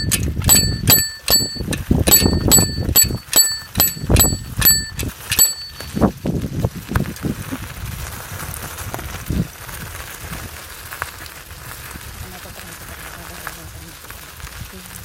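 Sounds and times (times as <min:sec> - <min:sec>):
bicycle bell ringing: 0:00.0 - 0:06.1
bicycle riding rumble: 0:00.0 - 0:15.0.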